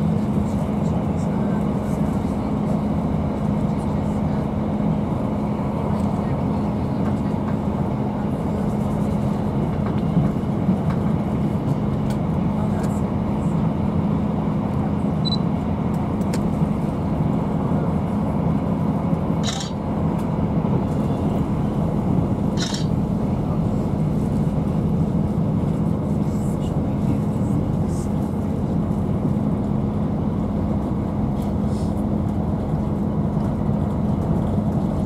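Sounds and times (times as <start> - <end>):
diesel engine drone: 0.0 - 35.0
train wheels on rails: 5.8 - 13.7, 18.8 - 30.0.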